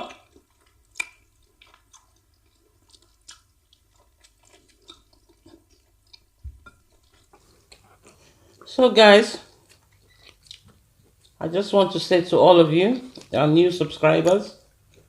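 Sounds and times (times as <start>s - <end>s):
chewing: 0.0s - 8.7s, 9.3s - 11.4s, 13.0s - 13.4s, 14.6s - 15.0s
wet mouth clicks: 0.4s - 8.0s.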